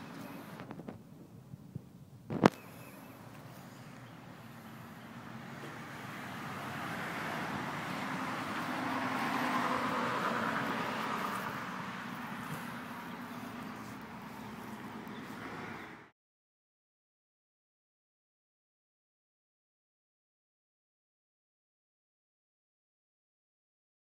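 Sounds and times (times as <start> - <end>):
diesel engine running: 2.6 - 16.1.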